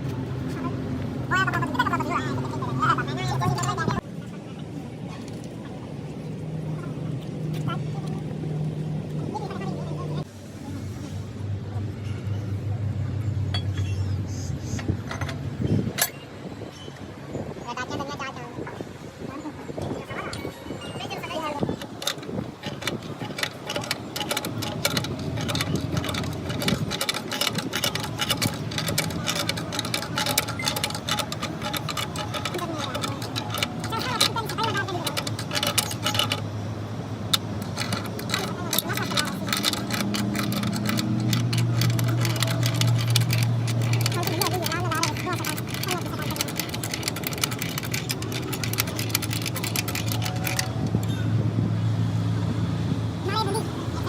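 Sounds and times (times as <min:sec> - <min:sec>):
mechanical hum: 0:00.0 - 0:54.0
rapid clicking and tapping: 0:21.8 - 0:36.5, 0:37.3 - 0:51.1.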